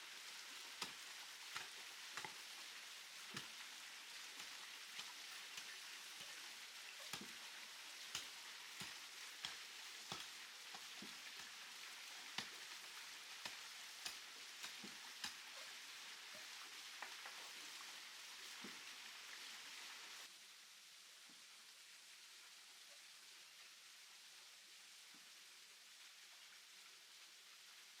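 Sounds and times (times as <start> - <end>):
steady hissing noise: 0.0 - 28.0
light ticks: 8.1 - 11.5, 13.4 - 15.5.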